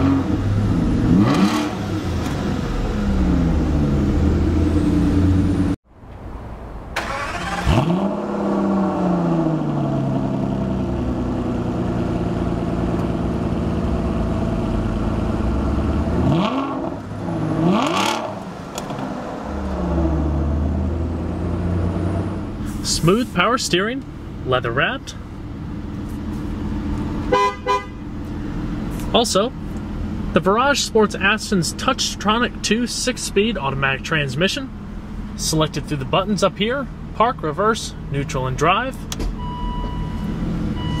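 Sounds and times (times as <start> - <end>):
car engine revving: 0.0 - 5.8, 7.0 - 30.5
car engine idling: 8.4 - 41.0.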